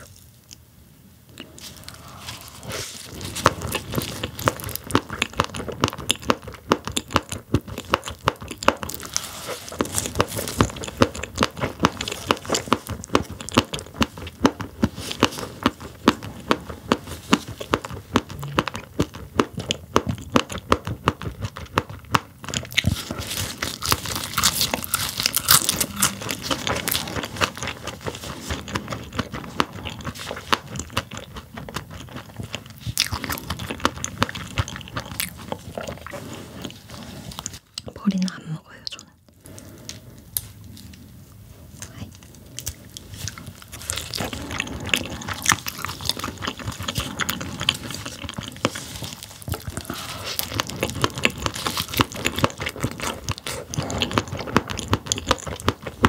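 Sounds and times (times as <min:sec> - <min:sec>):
crunchy chewing: 0:01.3 - 0:41.1, 0:41.8 - 0:56.0.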